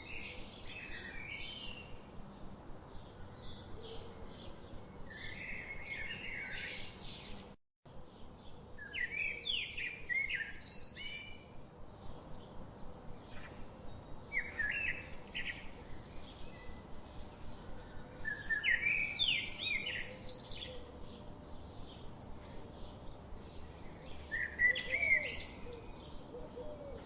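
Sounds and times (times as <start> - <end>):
outdoor background hiss: 0.0 - 27.0
songbird chirps and whistles: 14.3 - 15.6, 18.2 - 20.8, 24.2 - 26.0.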